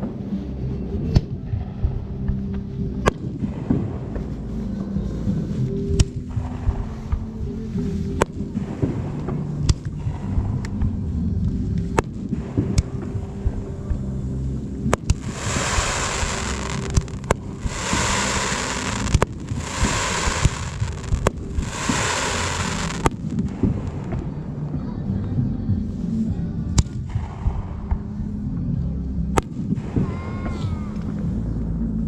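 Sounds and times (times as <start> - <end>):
music soundtrack: 0.1 - 26.3
firework shells bursting: 15.0 - 24.2
long hissing fireworks: 15.0 - 24.4.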